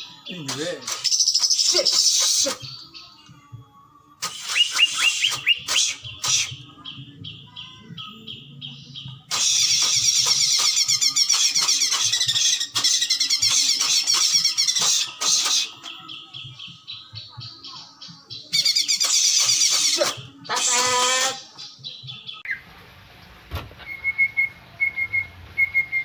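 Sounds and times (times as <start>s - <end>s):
bird singing whistles and trills: 0.3s - 3.2s, 4.2s - 22.6s, 23.8s - 26.0s.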